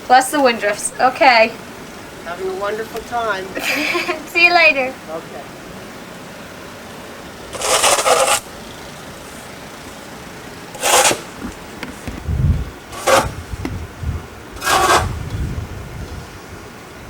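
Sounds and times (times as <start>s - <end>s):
snow shovel scraping pavement: 7.5s - 12.3s, 12.9s - 13.5s, 14.6s - 15.2s
dull low thumps: 12.1s - 16.3s.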